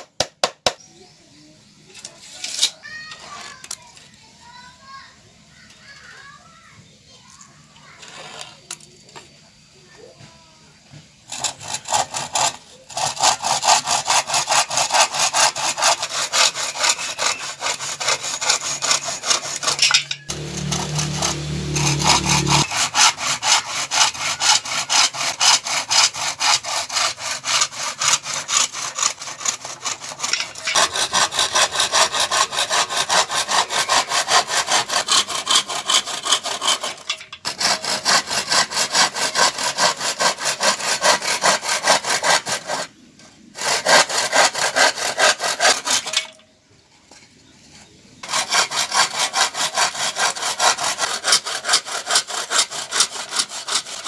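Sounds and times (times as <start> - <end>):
handsaw cutting wood: 11.3 - 42.9, 43.6 - 46.1, 48.2 - 54.0.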